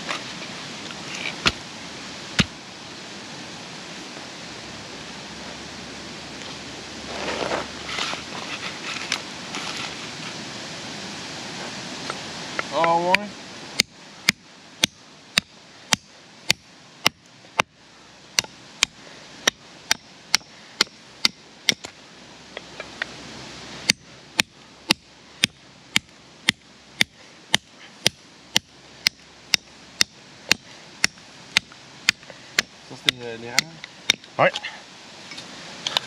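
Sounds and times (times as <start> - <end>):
hatchet chopping firewood: 1.2 - 1.6, 2.3 - 2.6, 13.8 - 22.0, 23.8 - 34.3.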